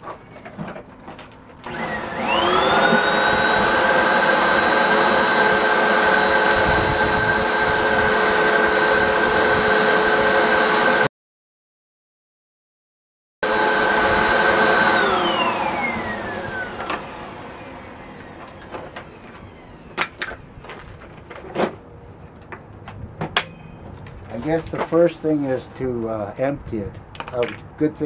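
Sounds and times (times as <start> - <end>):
vacuum cleaner motor whine: 1.6 - 11.1, 13.4 - 20.9.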